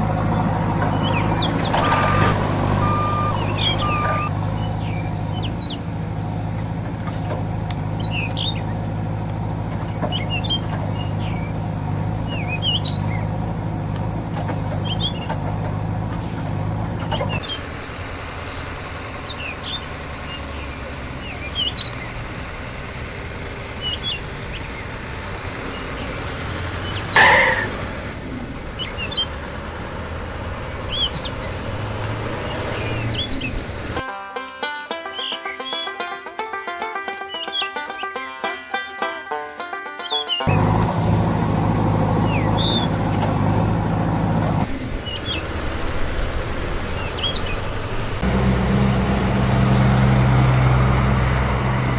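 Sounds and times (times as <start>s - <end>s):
birds chirping: 0.0s - 34.0s, 40.0s - 51.9s
engine humming: 0.0s - 34.0s, 40.4s - 51.9s
low vehicle rumble: 0.0s - 34.0s, 40.5s - 51.9s
loud horn honk: 1.6s - 4.6s.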